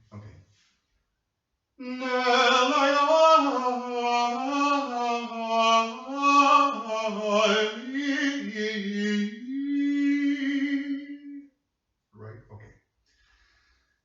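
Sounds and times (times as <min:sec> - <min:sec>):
person singing a chant-like melody: 0:01.8 - 0:11.4.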